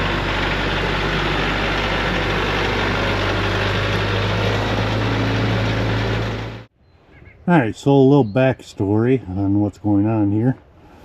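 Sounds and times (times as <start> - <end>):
tractor engine running: 0.0 - 6.7.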